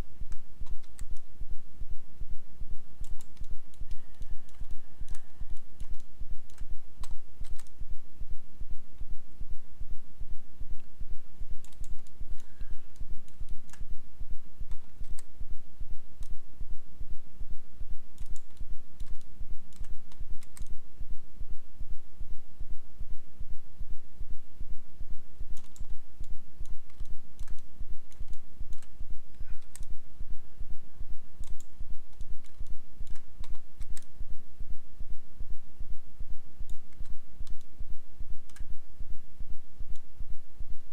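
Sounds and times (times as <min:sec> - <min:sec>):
low pulsing hum: 0:00.0 - 0:40.9
mouse and keyboard clicks: 0:00.3 - 0:01.3, 0:03.0 - 0:07.8, 0:11.6 - 0:13.9, 0:14.7 - 0:15.3, 0:18.2 - 0:20.8, 0:25.5 - 0:30.0, 0:31.4 - 0:34.1, 0:36.6 - 0:37.7, 0:38.4 - 0:38.7.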